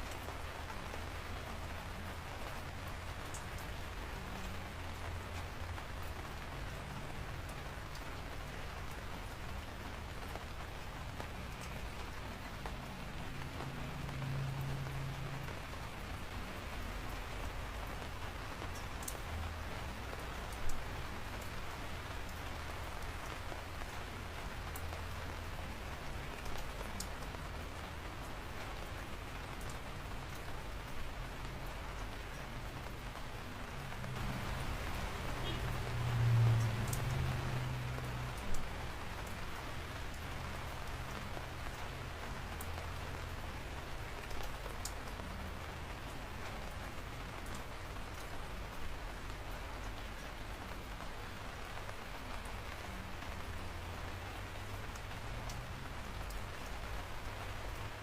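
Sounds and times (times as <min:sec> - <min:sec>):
raindrops ticking on a surface: 0:00.0 - 0:58.0
steady rain falling: 0:00.0 - 0:58.0.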